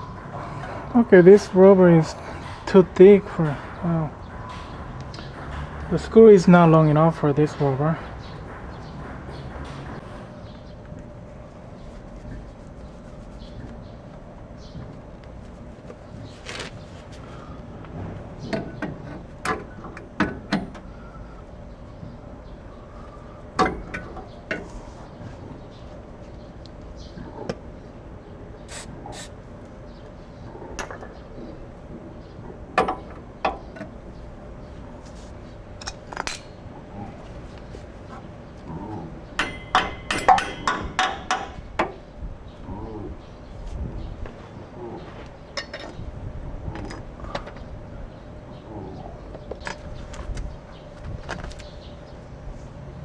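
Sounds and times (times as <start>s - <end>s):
metal tool tapping metal: 39.4s - 41.9s.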